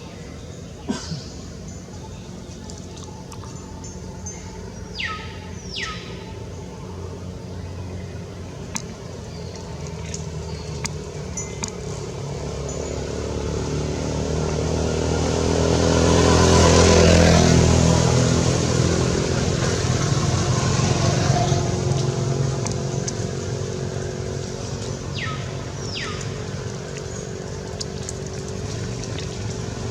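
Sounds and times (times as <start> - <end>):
vehicle engine passing by: 8.1 - 29.9.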